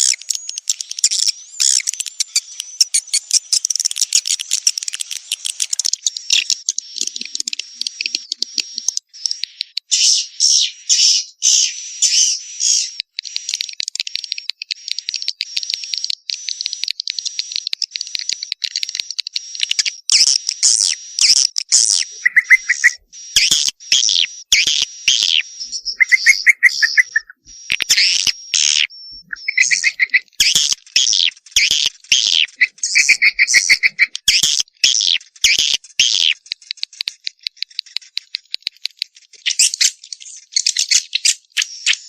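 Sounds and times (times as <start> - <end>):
swiftlets twittering: 0.0 - 9.8, 20.0 - 36.4
low buzzy bird trills: 20.7 - 35.2.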